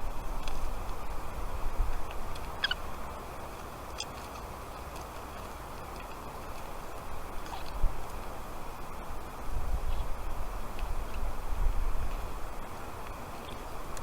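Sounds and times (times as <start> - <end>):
low wind rumble: 0.0 - 14.0
steady hiss: 0.0 - 14.0
falcon chicks chirping: 2.5 - 2.8.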